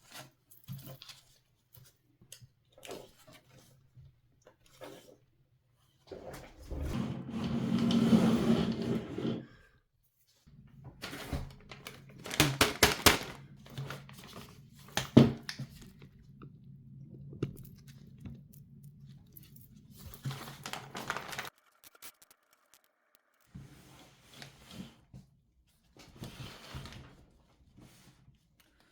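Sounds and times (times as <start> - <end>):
packaging crinkling and rustling: 11.0 - 16.0, 20.0 - 23.8.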